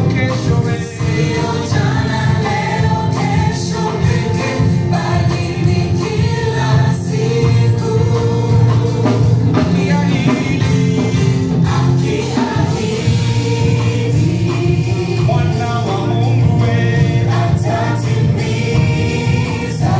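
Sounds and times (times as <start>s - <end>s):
band with heavy bass: 0.0s - 19.9s
choir singing: 0.0s - 19.9s.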